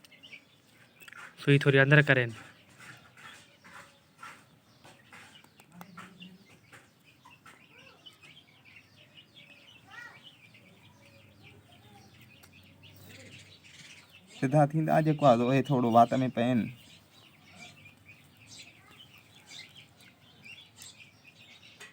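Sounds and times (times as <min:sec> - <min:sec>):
parrot chicks begging chirps: 0:02.3 - 0:21.9.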